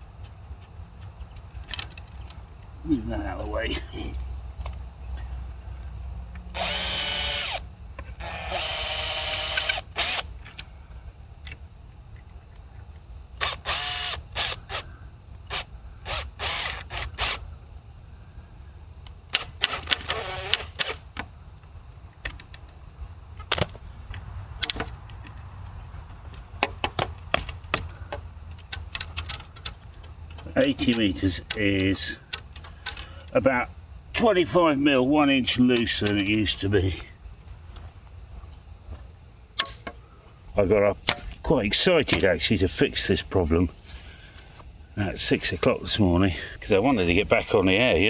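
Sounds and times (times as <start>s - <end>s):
metal parts clicking and knocking: 0.2s - 2.7s, 23.4s - 33.4s, 35.7s - 36.6s
cordless drill motor whining: 6.5s - 10.3s, 13.4s - 17.5s, 19.4s - 21.1s.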